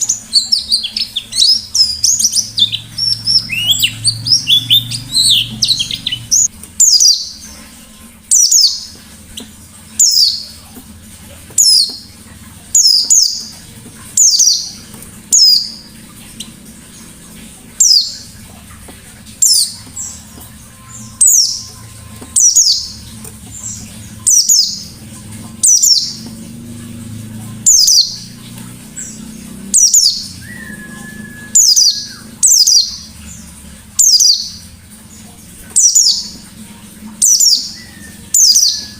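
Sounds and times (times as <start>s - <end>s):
bird twittering: 0.0s - 7.6s, 8.2s - 10.7s, 11.6s - 26.4s, 27.5s - 34.8s, 35.7s - 36.5s, 37.1s - 38.9s
bird calling sharp downward notes: 27.6s - 33.0s.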